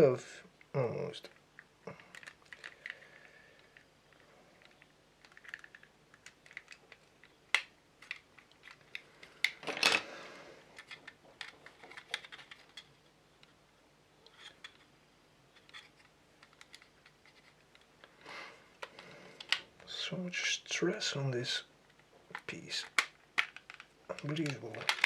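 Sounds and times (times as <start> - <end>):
plastic parts clicking and tapping: 1.3 - 10.0, 10.7 - 13.6, 14.2 - 14.9, 15.5 - 18.2, 18.8 - 19.7, 21.9 - 25.0
plastic scraping rustle: 10.7 - 13.0, 15.5 - 18.2, 21.9 - 25.0.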